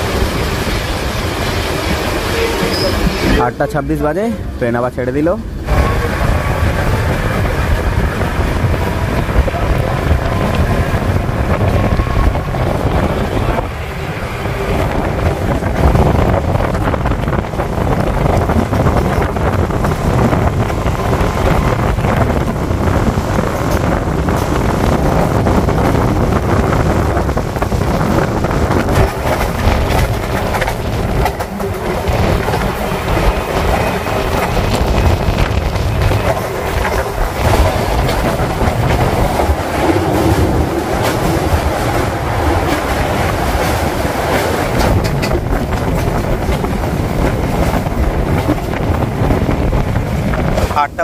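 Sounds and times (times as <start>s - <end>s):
train coach rumbling: 0.0s - 51.0s
wind buffeting microphone: 0.0s - 51.0s
wheels clattering over track: 14.8s - 50.8s.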